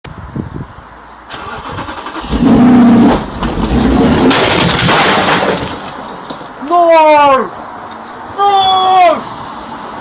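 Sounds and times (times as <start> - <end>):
car engine revving: 1.4 - 5.1.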